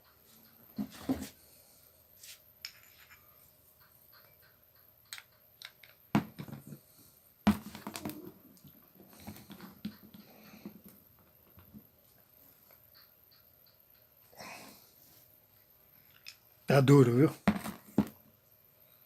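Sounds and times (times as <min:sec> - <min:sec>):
metal tools clinking: 0:02.6 - 0:03.5.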